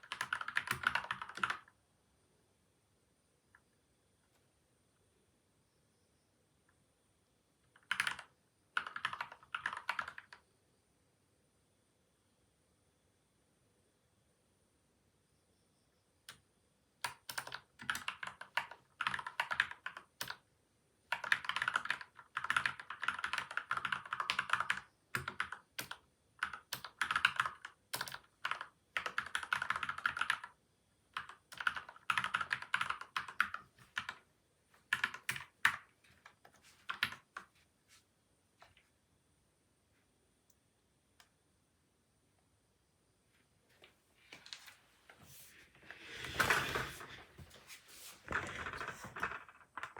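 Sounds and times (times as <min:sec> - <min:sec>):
mechanical keyboard typing: 0:00.0 - 0:01.7, 0:07.7 - 0:10.4, 0:17.0 - 0:20.4, 0:21.1 - 0:30.6, 0:31.2 - 0:34.2, 0:34.9 - 0:37.4, 0:48.3 - 0:49.9.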